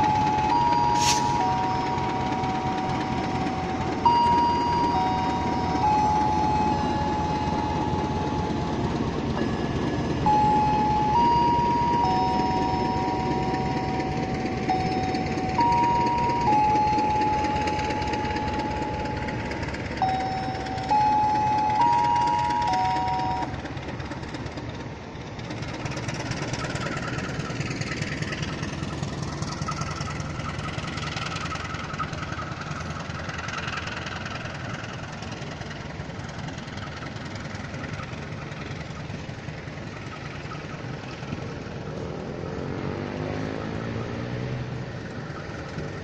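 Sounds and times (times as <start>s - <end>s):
slow electronic melody: 0.0s - 23.6s
train coaches rumbling past: 0.0s - 46.0s
short hiss: 1.0s - 1.4s.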